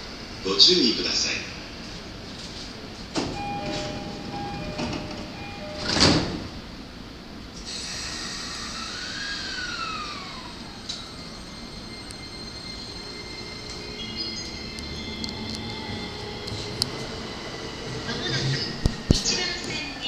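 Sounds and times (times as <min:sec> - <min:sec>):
sliding doors shutting with thud: 0:03.1 - 0:06.6
train traction motor whine: 0:03.2 - 0:07.0, 0:07.6 - 0:20.0
two-note door chime: 0:03.4 - 0:06.4.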